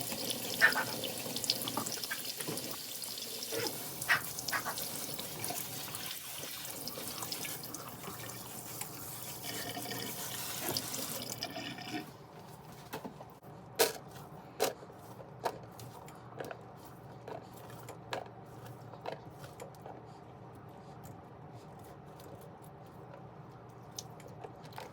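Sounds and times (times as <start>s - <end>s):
tap running water into sink: 0.0s - 12.0s.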